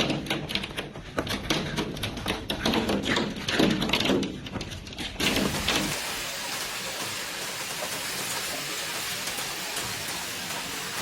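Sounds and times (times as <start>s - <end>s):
hailstones striking hard surface: 5.2s - 11.0s
heavy rain hiss: 5.2s - 11.0s.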